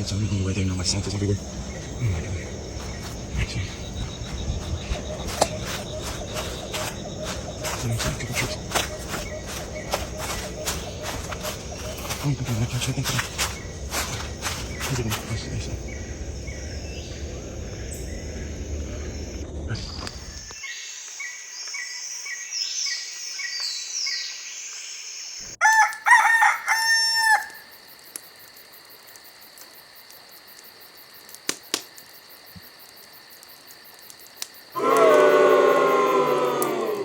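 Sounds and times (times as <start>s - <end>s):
high insect drone: 0.0s - 20.6s
small birds chirping: 0.0s - 25.5s
loud crowing call: 25.6s - 27.6s, 34.8s - 37.0s
loud long animal call: 34.8s - 37.0s.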